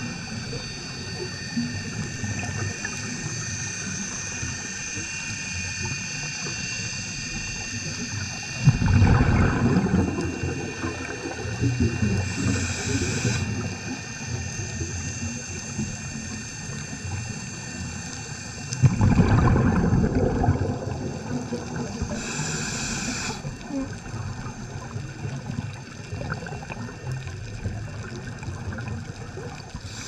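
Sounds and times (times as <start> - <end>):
gurgling breath bubbles: 8.6 - 16.1, 18.7 - 30.0.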